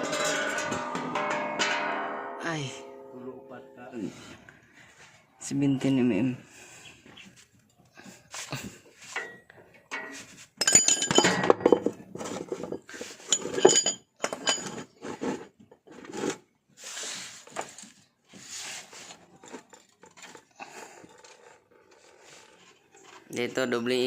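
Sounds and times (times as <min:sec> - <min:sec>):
metal hand tools clinking: 0:09.2 - 0:12.0, 0:12.6 - 0:14.8
soft scraping: 0:14.8 - 0:23.3.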